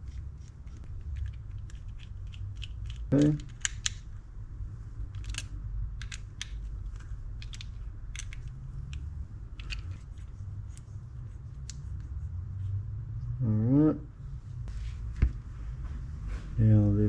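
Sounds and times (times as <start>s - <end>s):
low steady hum: 0.0s - 17.0s
screws being tightened clicking: 0.1s - 4.0s.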